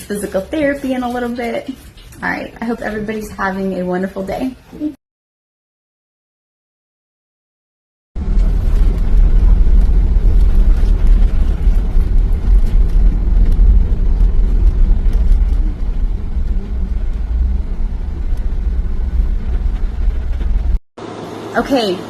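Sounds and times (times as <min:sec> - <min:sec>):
vehicle rumble: 0:08.2 - 0:20.8.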